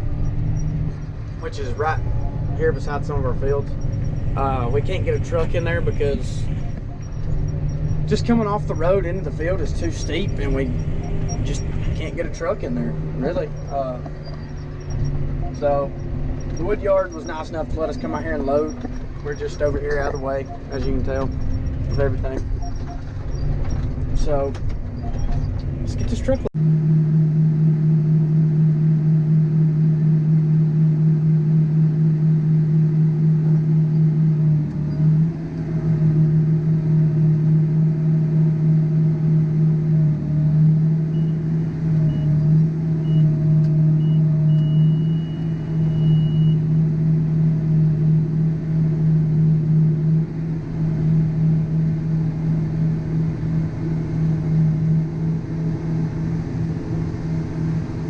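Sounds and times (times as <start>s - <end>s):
electronic warning beeps: 0.0s - 26.5s, 41.1s - 42.4s, 43.0s - 43.4s, 44.0s - 46.7s
heavy engine droning: 0.0s - 58.0s.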